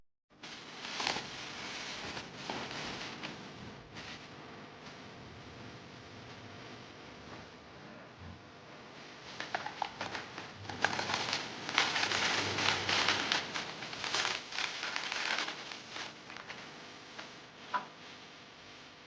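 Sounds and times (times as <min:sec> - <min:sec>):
packaging crinkling: 0:00.5 - 0:03.3, 0:09.3 - 0:17.3.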